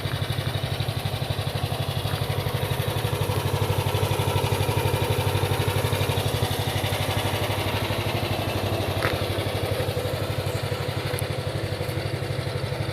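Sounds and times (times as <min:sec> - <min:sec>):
tracked loader engine running: 0:00.0 - 0:12.9.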